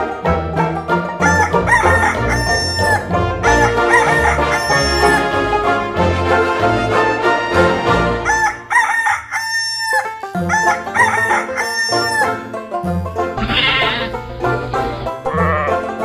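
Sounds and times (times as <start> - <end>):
background music: 0.0 - 16.0
rooster crowing: 3.9 - 5.2, 8.3 - 12.2, 13.4 - 15.9.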